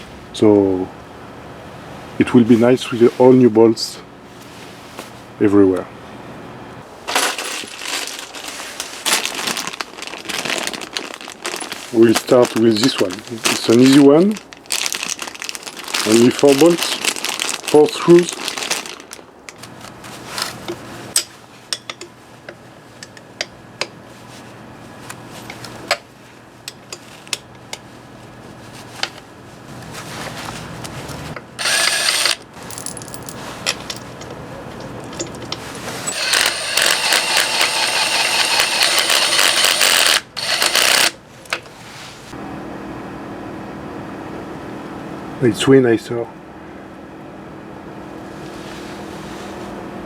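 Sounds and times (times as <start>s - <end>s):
tool rattling turning bolts: 31.6s - 41.2s.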